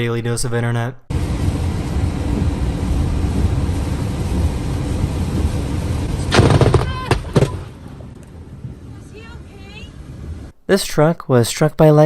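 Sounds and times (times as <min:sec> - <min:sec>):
lightning strike crack: 0:01.1 - 0:10.5
low rumble: 0:01.1 - 0:10.5.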